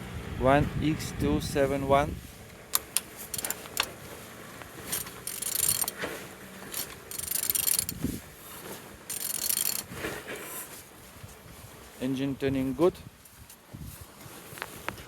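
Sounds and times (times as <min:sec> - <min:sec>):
ratchet wrench clicking: 0:02.7 - 0:03.9, 0:04.9 - 0:06.0, 0:06.7 - 0:08.0, 0:09.1 - 0:09.9.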